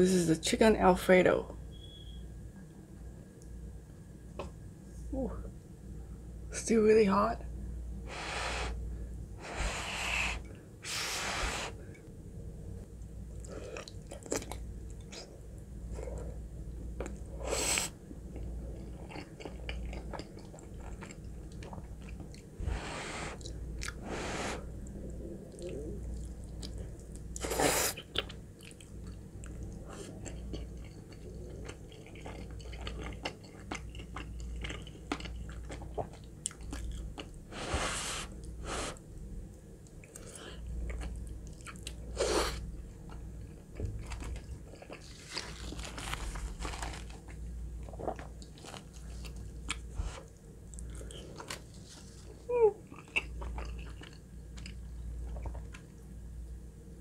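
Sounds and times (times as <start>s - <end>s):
chewing creamy pasta: 13.3s - 22.6s, 24.8s - 37.4s, 39.8s - 56.1s.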